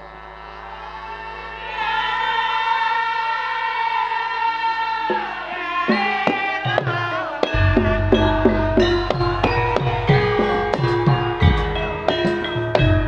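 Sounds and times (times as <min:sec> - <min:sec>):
hand drum strokes: 0:05.1 - 0:13.0
short plucked notes: 0:07.5 - 0:13.0
bass line: 0:07.6 - 0:13.0
held chord: 0:07.6 - 0:13.0.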